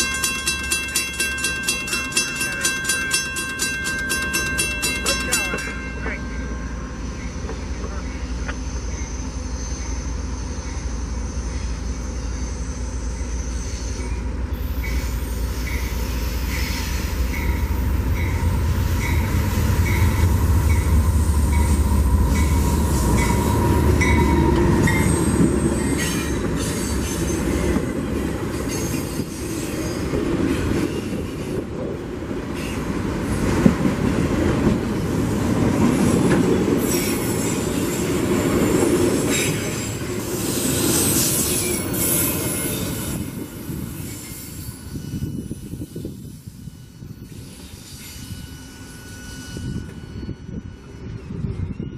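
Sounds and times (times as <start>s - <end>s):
train wheels clacking over rails: 0.0s - 6.5s, 14.0s - 45.5s
train bell ringing: 0.0s - 11.0s, 14.0s - 30.2s, 36.0s - 51.9s
diesel locomotive engine rumble: 0.0s - 51.9s.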